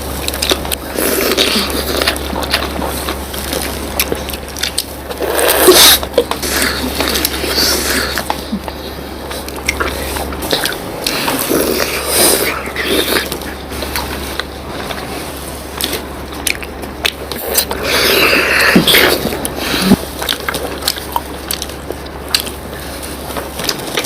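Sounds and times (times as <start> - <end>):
people chewing and slurping: 0.0 - 24.0
steady low hum: 0.0 - 24.0
mouth clicks and smacks: 0.2 - 15.0.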